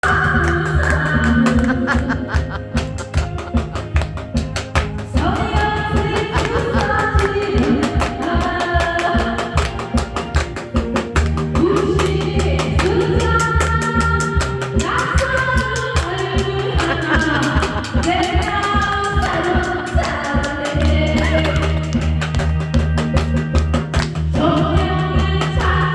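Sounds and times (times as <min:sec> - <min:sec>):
music with singing voices: 0:00.0 - 0:25.9.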